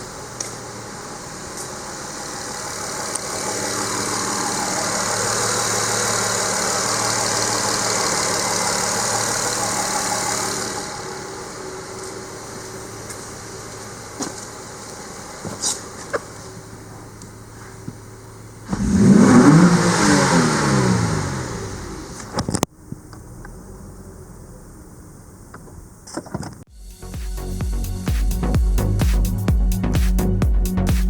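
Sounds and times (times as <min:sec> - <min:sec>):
rushing hiss: 0:00.0 - 0:16.1, 0:26.7 - 0:30.3
car engine idling: 0:00.0 - 0:26.0, 0:26.8 - 0:31.0.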